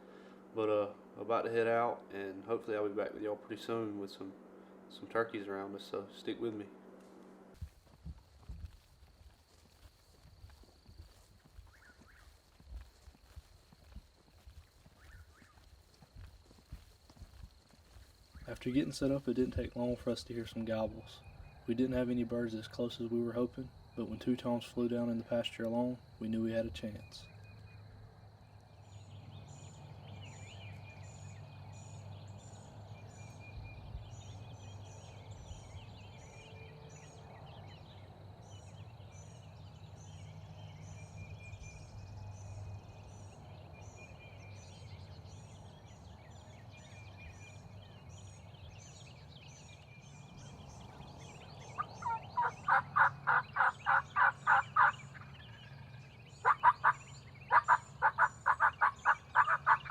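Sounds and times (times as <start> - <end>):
low steady hum: 0.0 - 11.7
songbirds chirping: 0.0 - 59.9
wild turkey yelps: 51.8 - 55.7, 56.4 - 59.9.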